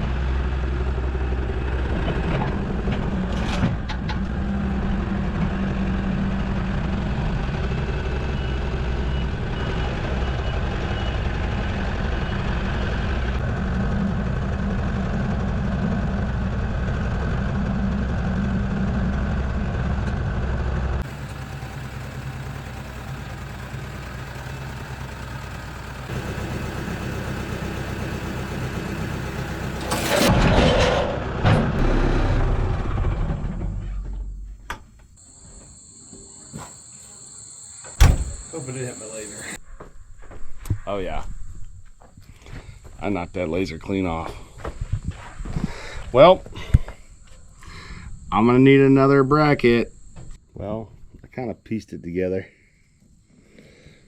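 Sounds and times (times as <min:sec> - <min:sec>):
engine running: 0:00.0 - 0:34.6, 0:38.0 - 0:39.6.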